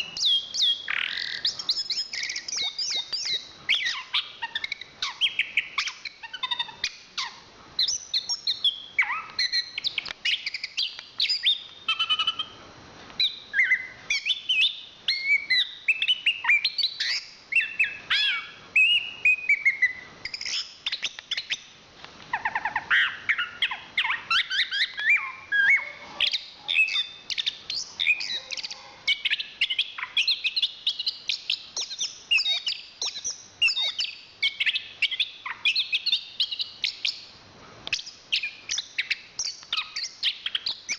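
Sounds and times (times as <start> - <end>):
thrush singing whistled phrases: 0.0 - 12.6, 13.2 - 21.7, 26.8 - 37.2.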